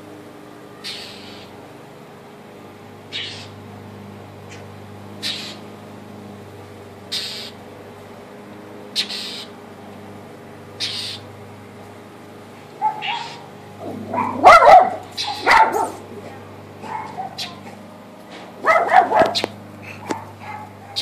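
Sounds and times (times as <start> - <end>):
bird harsh scolding calls: 0.8 - 1.6, 3.1 - 3.6, 4.5 - 5.7, 7.0 - 7.6, 8.9 - 9.6, 10.8 - 11.3, 12.8 - 16.1, 16.8 - 17.8, 18.6 - 21.0
low animal cries: 12.8 - 16.0.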